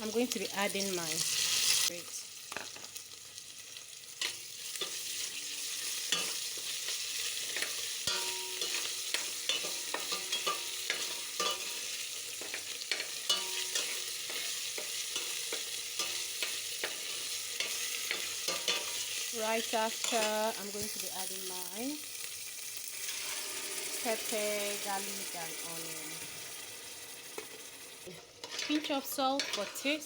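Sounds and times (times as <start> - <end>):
onions sizzling in oil: 0.0 - 30.0
spoon scraping a pot: 7.5 - 19.2, 23.0 - 24.0, 28.4 - 30.0.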